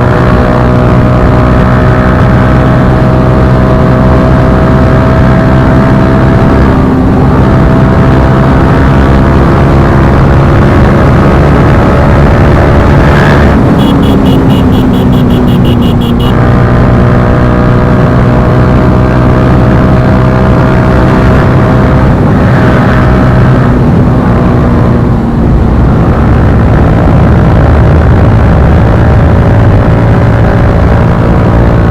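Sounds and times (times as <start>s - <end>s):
motorcycle engine running: 9.5s - 18.6s.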